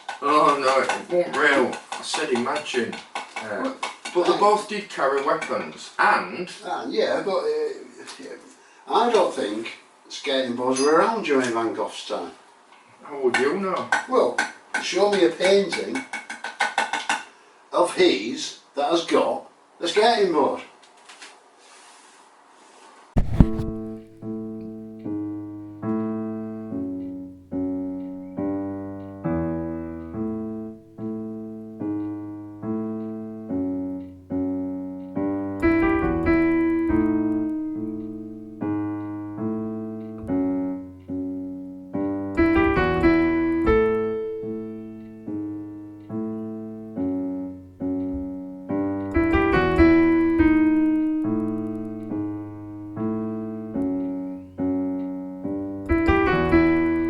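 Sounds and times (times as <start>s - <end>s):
solo piano music: 23.2s - 57.0s.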